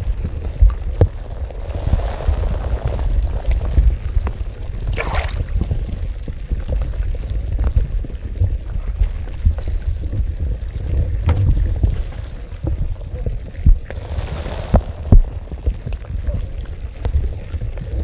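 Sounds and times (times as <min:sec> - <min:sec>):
water bubbling and sloshing: 0:00.0 - 0:18.0
water gushing: 0:00.0 - 0:18.0
small water plops: 0:04.8 - 0:06.0.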